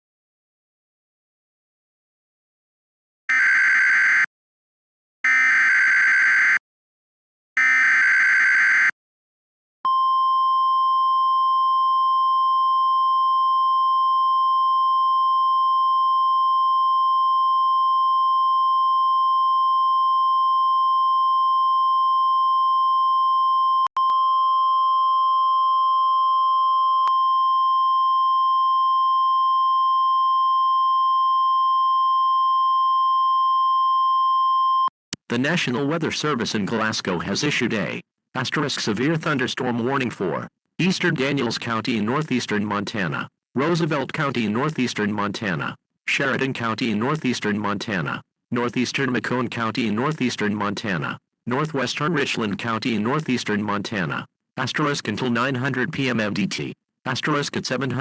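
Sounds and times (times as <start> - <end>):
steady warning alarm tone: 3.3 - 4.3, 7.6 - 8.9.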